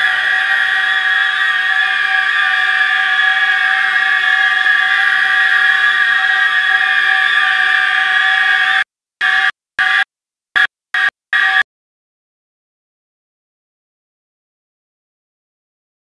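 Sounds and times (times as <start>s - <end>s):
dissonant high drone: 0.0s - 10.0s.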